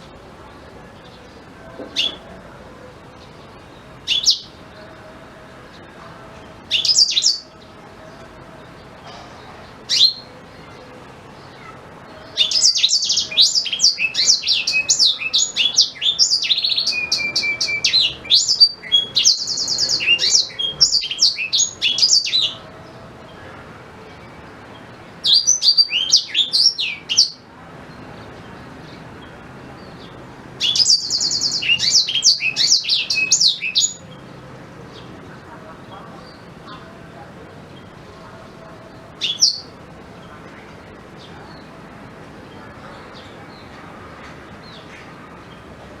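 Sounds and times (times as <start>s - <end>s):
canary chirping and singing: 4.0s - 4.6s, 6.7s - 7.5s, 12.4s - 22.6s, 30.6s - 34.1s, 39.2s - 39.7s.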